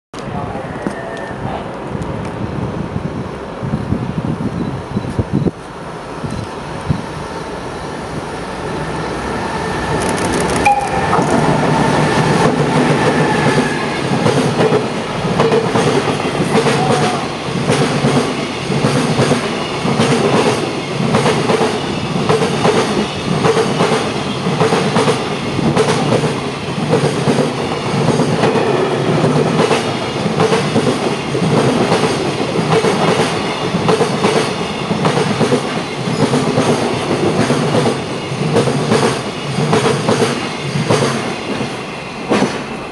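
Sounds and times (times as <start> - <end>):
train wheels clattering over rails: 9.6 - 42.9.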